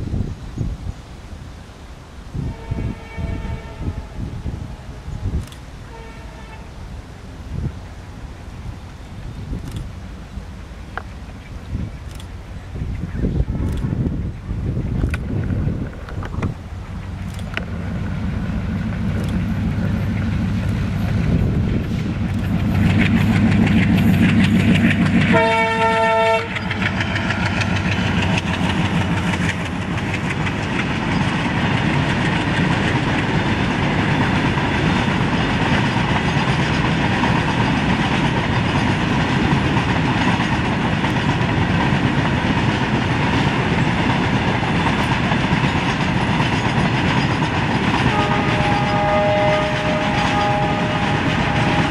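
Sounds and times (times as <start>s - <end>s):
diesel locomotive engines: 0.0s - 51.9s
train horn blast: 2.4s - 6.8s, 25.3s - 27.4s, 48.0s - 51.9s
wheels clattering over rail joints: 8.6s - 51.9s.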